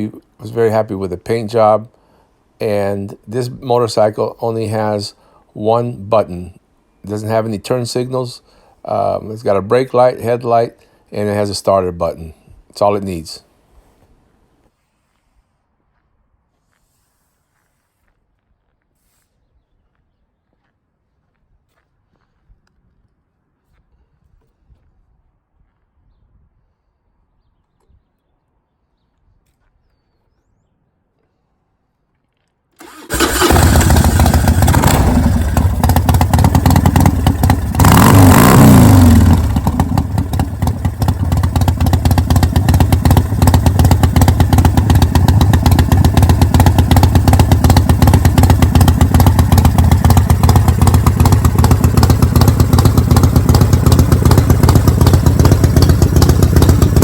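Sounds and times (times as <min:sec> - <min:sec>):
motorcycle engine revving: 0:32.8 - 0:57.0
motorcycle engine starting and idling: 0:32.8 - 0:57.0.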